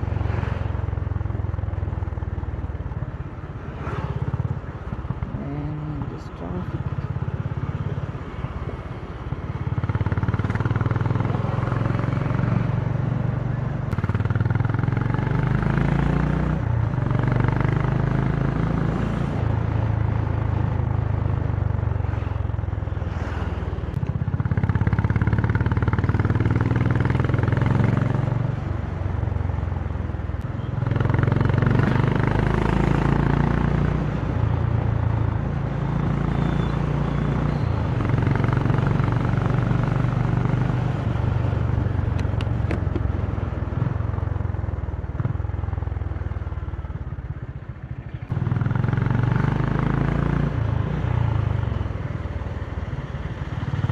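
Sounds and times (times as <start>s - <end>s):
motorcycle engine revving: 9.3s - 21.4s, 24.0s - 28.7s, 30.6s - 45.8s, 47.9s - 53.9s.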